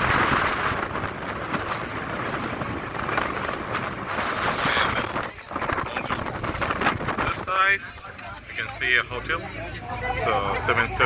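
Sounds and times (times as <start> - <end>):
wind buffeting microphone: 0.0 - 8.3
boat low rumble: 0.0 - 11.0.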